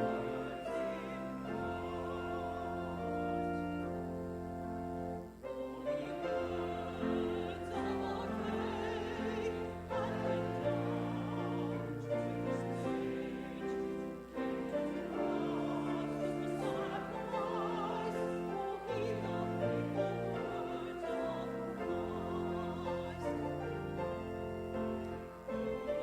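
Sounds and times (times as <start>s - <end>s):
classical singing with vibrato: 0.0s - 26.0s
sustained instrumental accompaniment: 0.0s - 26.0s.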